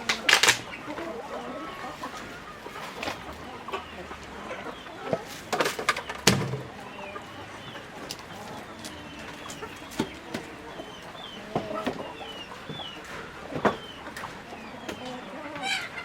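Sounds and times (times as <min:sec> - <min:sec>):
chickens clucking: 0:00.0 - 0:16.0
sharp knocks and rattles: 0:05.2 - 0:06.8.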